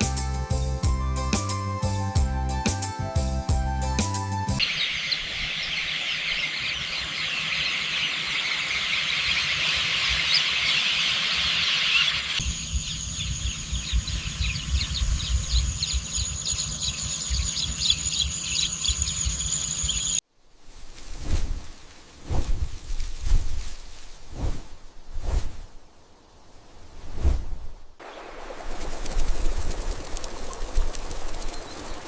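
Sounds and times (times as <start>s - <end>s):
small birds chirping: 4.6s - 20.2s, 28.1s - 32.0s
high insect drone: 11.8s - 20.2s.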